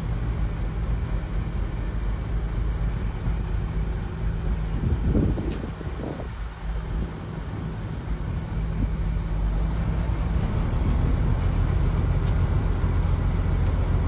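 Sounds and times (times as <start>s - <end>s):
diesel engine hum: 0.0s - 14.0s
sharp click: 5.4s - 5.7s.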